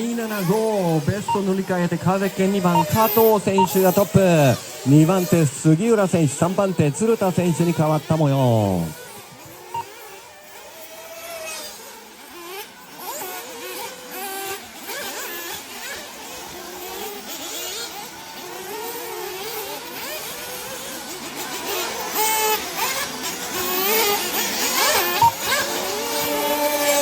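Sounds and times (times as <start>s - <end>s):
model buggy engines revving: 0.0s - 27.0s.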